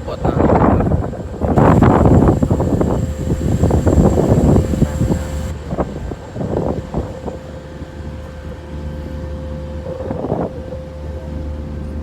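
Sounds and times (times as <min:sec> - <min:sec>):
wind buffeting microphone: 0:00.0 - 0:11.4
engine humming: 0:01.2 - 0:08.6.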